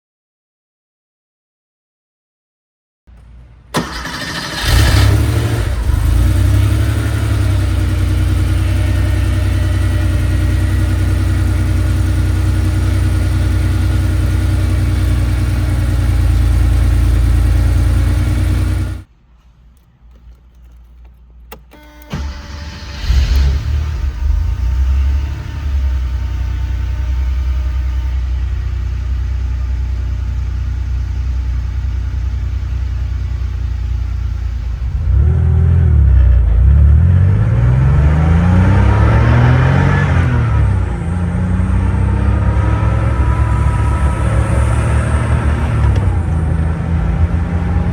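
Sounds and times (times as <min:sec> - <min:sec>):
car engine fast idle: 0:03.8 - 0:19.0, 0:21.8 - 0:35.2
engine revving: 0:03.8 - 0:19.1, 0:22.1 - 0:29.8, 0:34.7 - 0:47.9.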